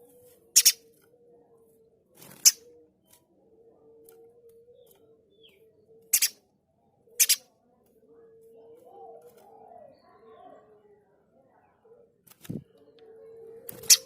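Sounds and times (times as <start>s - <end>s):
bird giving harsh rasping calls: 7.2s - 7.4s.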